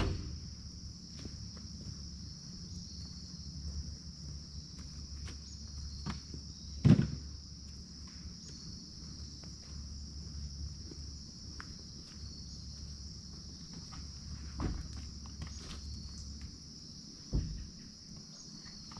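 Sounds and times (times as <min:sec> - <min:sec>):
loud thump: 0:00.0 - 0:00.5, 0:17.3 - 0:17.8
insects chirring: 0:00.0 - 0:18.9.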